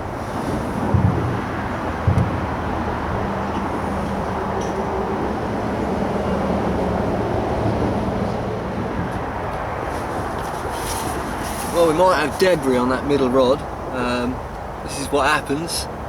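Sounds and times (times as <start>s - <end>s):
low thumps: 0.0s - 4.9s
road traffic drone: 0.0s - 16.0s.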